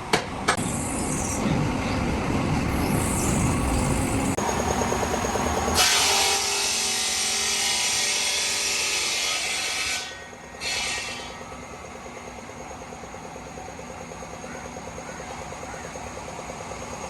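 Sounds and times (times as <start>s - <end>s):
quiet machine drone: 0.4s - 17.0s
power tool grinding hiss: 5.8s - 11.6s.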